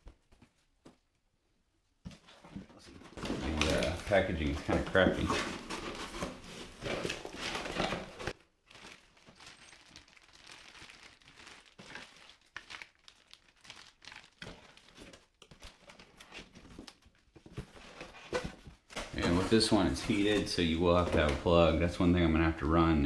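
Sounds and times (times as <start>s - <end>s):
packaging rustling and crinkling: 3.0s - 21.5s.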